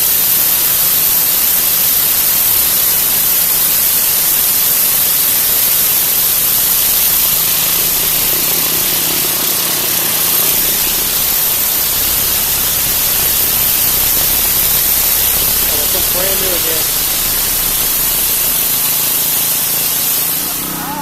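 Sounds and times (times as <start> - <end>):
pressure washer jet on concrete: 0.0 - 21.0
faint low engine hum: 6.4 - 21.0.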